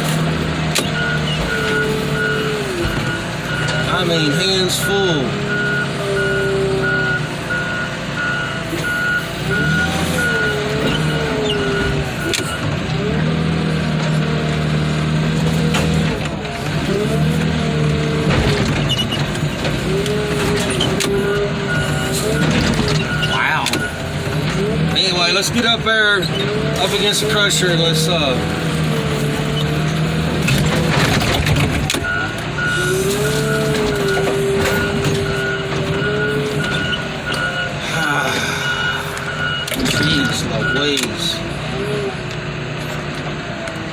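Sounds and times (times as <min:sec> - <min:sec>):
engine whine under load: 0:00.0 - 0:43.9
machine engine running: 0:00.0 - 0:43.9
backup alarm beeping: 0:00.8 - 0:12.7, 0:20.2 - 0:25.0, 0:32.0 - 0:41.5.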